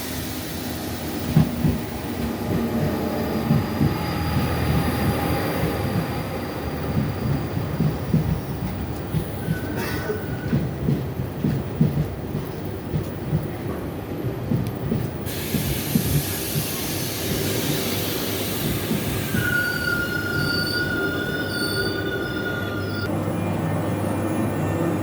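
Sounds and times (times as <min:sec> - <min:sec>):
train hiss: 0:00.0 - 0:03.2, 0:15.2 - 0:23.1
train low rumble: 0:00.0 - 0:25.0
high-pitched train squeal: 0:15.4 - 0:25.0.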